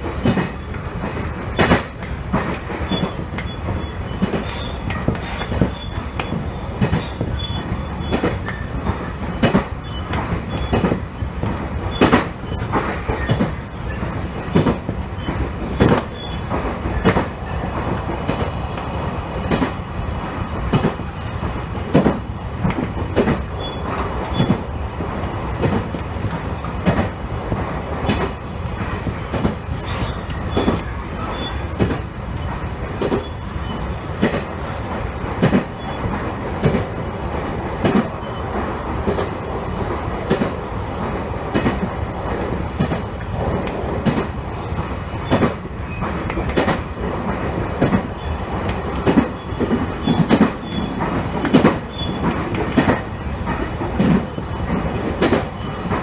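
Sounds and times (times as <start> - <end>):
train rumbling: 0.0 - 56.0
wheels clacking over rail joints: 0.0 - 56.0.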